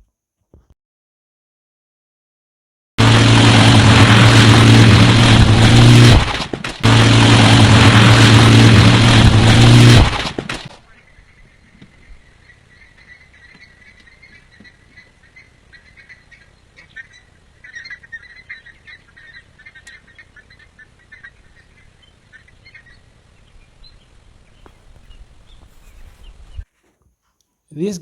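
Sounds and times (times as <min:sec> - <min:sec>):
low rumble of wind: 0:03.5 - 0:10.2, 0:10.8 - 0:26.7
birds chirping: 0:10.8 - 0:28.0.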